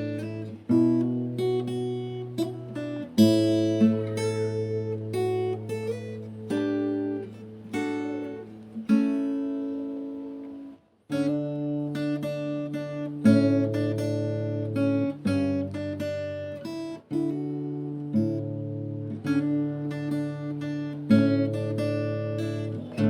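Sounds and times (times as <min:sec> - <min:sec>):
acoustic guitar strumming chords: 0:00.0 - 0:23.0.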